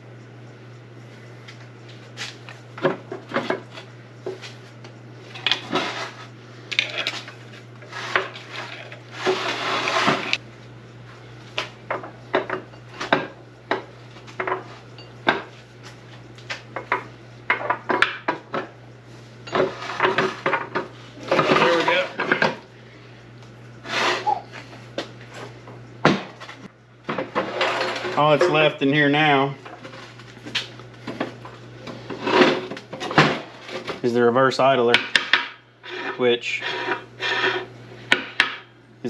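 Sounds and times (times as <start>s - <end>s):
metal scraping rasp: 7.8s - 10.4s, 23.8s - 24.5s, 35.8s - 37.7s.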